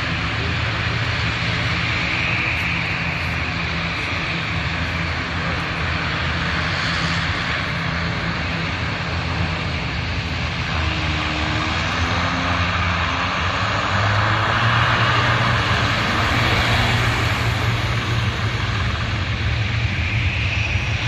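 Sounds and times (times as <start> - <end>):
airliner engines roaring: 0.0 - 21.0.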